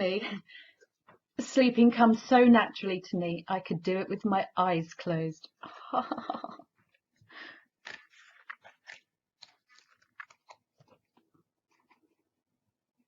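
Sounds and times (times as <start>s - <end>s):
paper crinkling: 7.8s - 12.4s.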